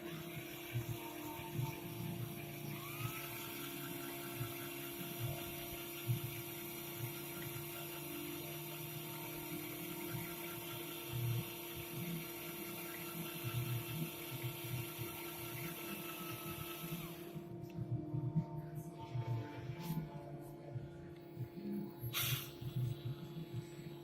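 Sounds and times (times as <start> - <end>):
small electric motor whine: 0.0 - 18.1.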